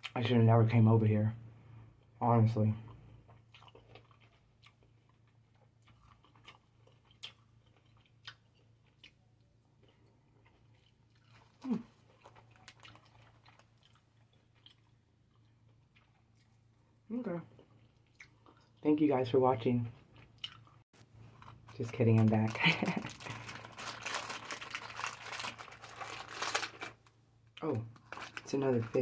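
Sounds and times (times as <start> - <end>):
person chewing grapes: 2.8 - 18.9, 19.9 - 29.0
small crunches and mouth clicks: 3.2 - 16.8.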